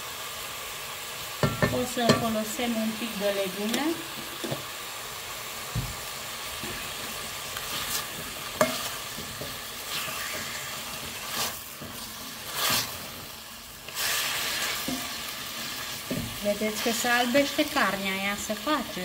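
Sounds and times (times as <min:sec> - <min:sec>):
onion and chicken sizzling: 0:00.0 - 0:19.0
spatula scraping a pot: 0:06.6 - 0:13.3.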